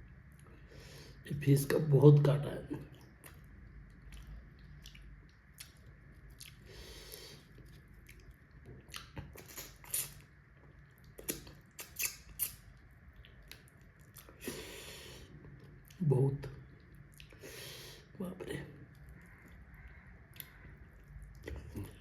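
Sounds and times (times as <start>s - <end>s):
person chewing food: 2.9s - 16.0s, 16.6s - 18.2s, 18.8s - 22.0s.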